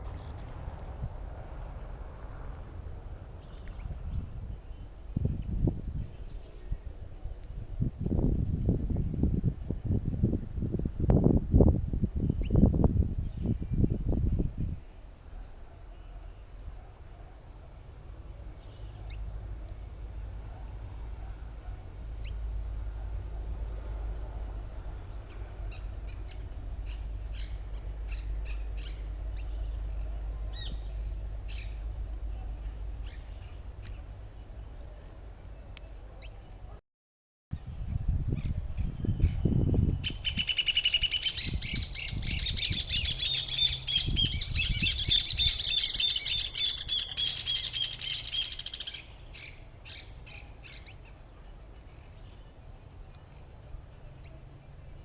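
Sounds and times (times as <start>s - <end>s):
low buffeting noise: 0.0s - 36.8s.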